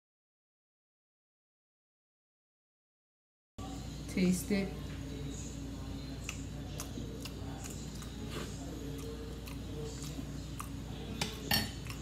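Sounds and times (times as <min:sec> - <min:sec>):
low room hum: 0:03.6 - 0:12.0
chewing food: 0:06.1 - 0:12.0.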